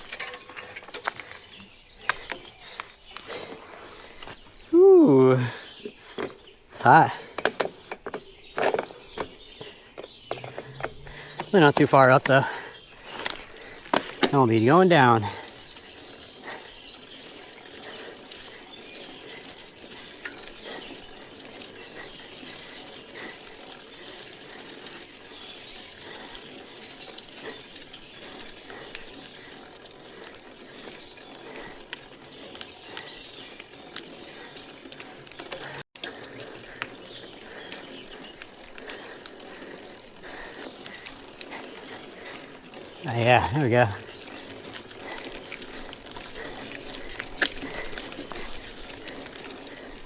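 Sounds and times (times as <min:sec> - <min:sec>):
bicycle tyres hissing: 0:00.0 - 0:50.0
bike ticks and rattles: 0:00.0 - 0:50.0.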